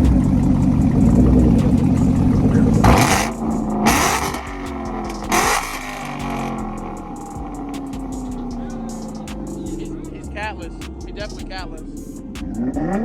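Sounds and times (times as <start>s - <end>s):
car engine revving and accelerating: 0.0s - 13.0s
harsh exhaust bursts: 0.0s - 13.0s.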